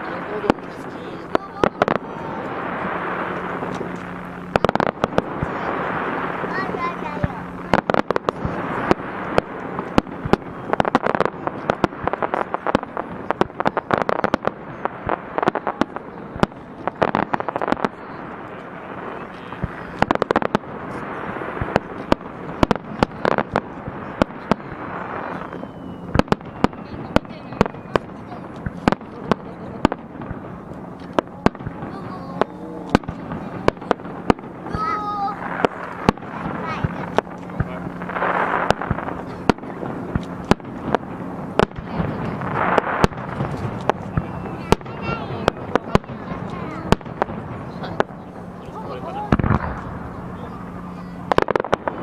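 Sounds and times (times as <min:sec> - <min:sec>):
continuous wash of noise: 0:00.0 - 0:52.0
fireworks bangs: 0:00.0 - 0:52.0
fireworks crackle: 0:00.0 - 0:52.0.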